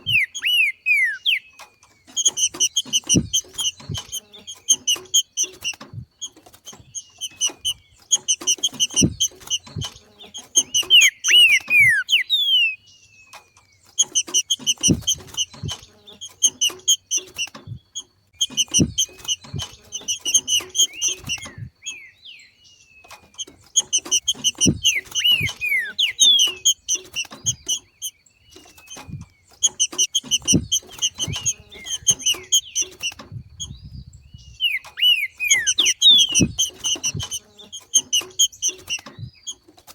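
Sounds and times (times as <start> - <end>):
bird calling sharp repeated notes: 0.0 - 33.8, 34.5 - 39.7
soft low thumps: 2.4 - 4.2, 8.6 - 10.1, 14.7 - 15.9, 17.6 - 21.8, 23.4 - 27.8, 29.0 - 34.6.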